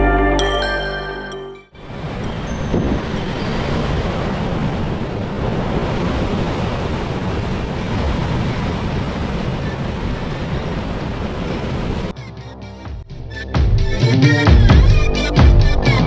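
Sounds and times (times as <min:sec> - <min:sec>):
wind: 0:01.7 - 0:12.2
rushing water: 0:01.8 - 0:12.1.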